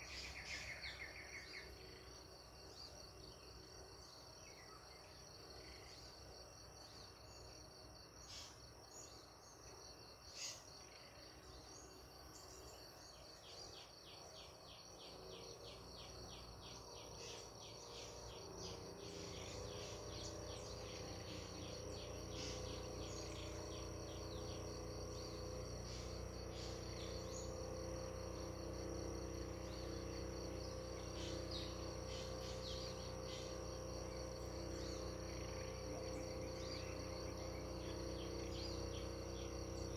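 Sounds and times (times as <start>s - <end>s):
crickets trilling: 0.0s - 39.9s
low steady multi-tone hum: 0.0s - 39.9s
bird chirps: 11.6s - 39.9s.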